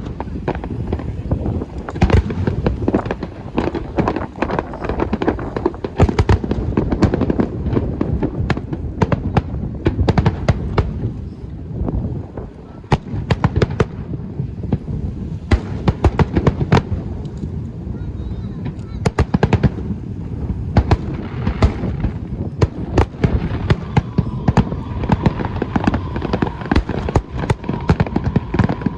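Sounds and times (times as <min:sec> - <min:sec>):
fireworks bangs and crackles: 0:00.0 - 0:28.9
low rumble: 0:19.7 - 0:28.9.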